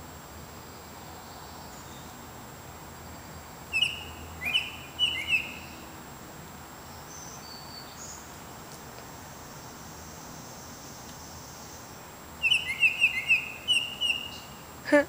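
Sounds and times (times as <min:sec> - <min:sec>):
background hiss: 0:00.0 - 0:15.0
songbird whistled notes: 0:03.7 - 0:05.8, 0:12.4 - 0:14.6.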